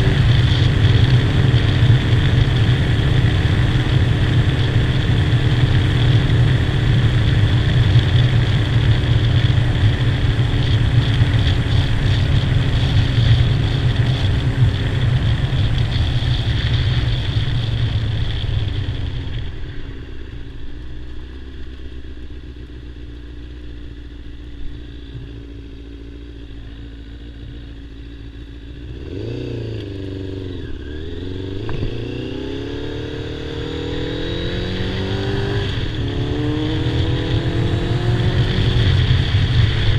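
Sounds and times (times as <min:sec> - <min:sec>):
wind noise: 0:00.0 - 0:19.6, 0:31.5 - 0:39.9
motorcycle engine running: 0:00.0 - 0:39.9.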